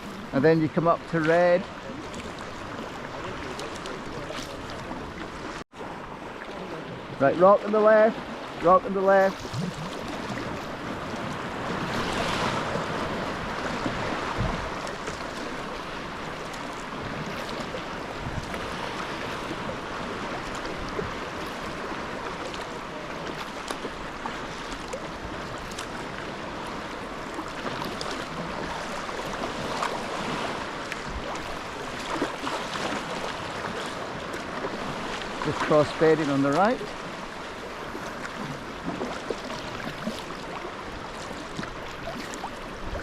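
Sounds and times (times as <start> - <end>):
water splashing around kayak: 0.0 - 43.0
wind buffeting microphone: 9.3 - 23.0, 41.0 - 43.0.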